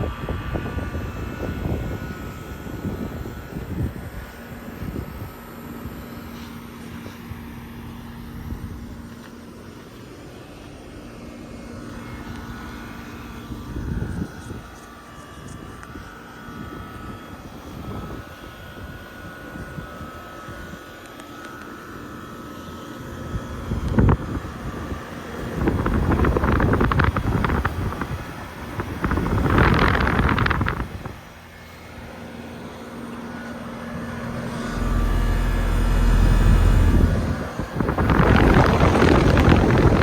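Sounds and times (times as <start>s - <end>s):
wind buffeting microphone: 0.0s - 6.0s, 13.4s - 20.8s, 23.3s - 31.3s, 34.5s - 40.0s
air conditioner unit running: 0.0s - 40.0s.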